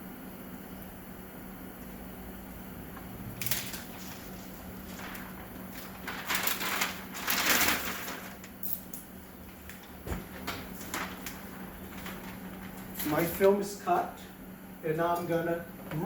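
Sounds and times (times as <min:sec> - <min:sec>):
plastic film crinkling: 0:03.3 - 0:08.9, 0:09.5 - 0:13.5.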